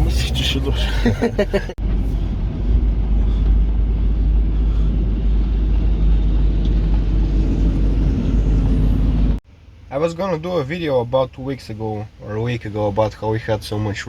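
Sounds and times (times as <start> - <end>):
farm vehicle engine rumble: 0.0 - 9.4.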